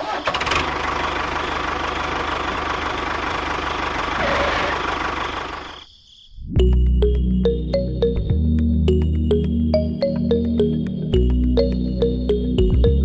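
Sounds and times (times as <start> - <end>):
background music: 6.6 - 13.0.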